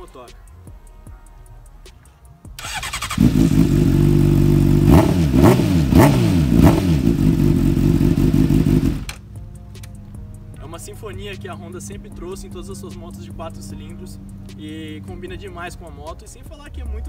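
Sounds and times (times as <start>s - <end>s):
motorcycle engine revving: 2.6s - 9.2s.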